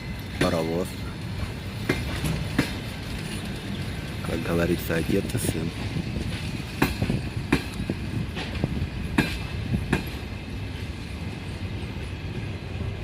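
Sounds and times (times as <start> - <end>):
train low rumble: 0.0 - 13.0
train wheels knocking over rail joints: 0.1 - 3.6, 5.7 - 10.4.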